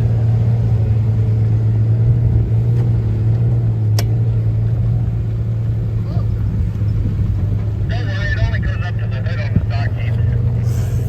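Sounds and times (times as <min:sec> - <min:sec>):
car engine idling: 0:03.0 - 0:11.0.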